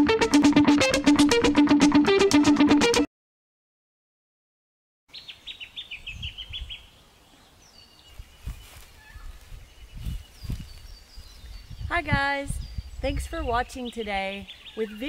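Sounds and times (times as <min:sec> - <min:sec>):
faint bird calls: 0:05.1 - 0:10.9
wind rumble on microphone: 0:06.0 - 0:06.9, 0:08.1 - 0:14.6.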